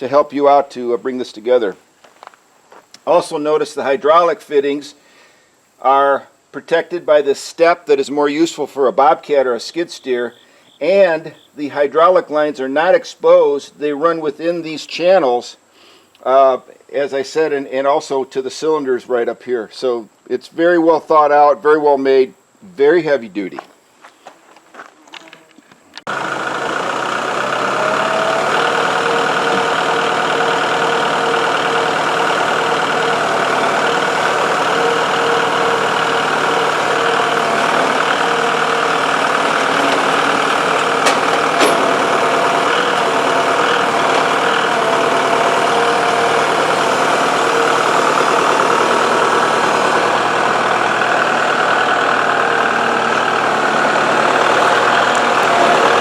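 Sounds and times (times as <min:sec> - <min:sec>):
tractor diesel engine running: 0:26.0 - 0:56.0.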